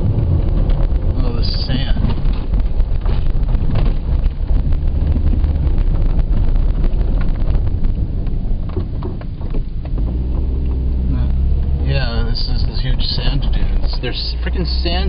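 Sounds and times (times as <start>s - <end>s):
knocks and rattles: 0.0s - 10.9s
car engine and road rumble: 0.0s - 15.0s.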